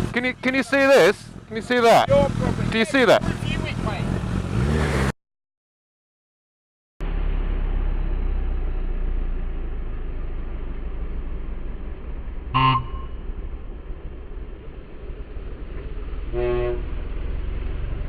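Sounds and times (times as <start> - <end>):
engine and road rumble: 0.0 - 5.2, 7.0 - 18.0
vehicle horn toots: 12.5 - 13.3, 16.3 - 16.9.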